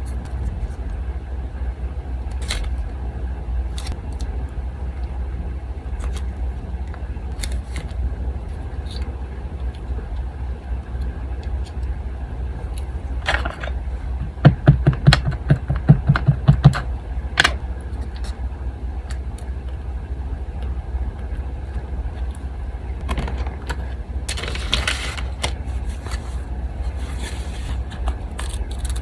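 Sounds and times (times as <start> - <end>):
electric fan humming: 0.0 - 29.0
fingers tapping on tabletop: 14.5 - 16.8
paper rustling: 24.3 - 29.0.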